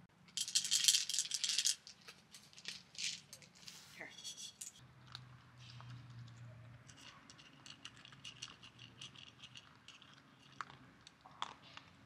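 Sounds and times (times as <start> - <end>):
faint crunchy chewing: 4.9 - 12.0.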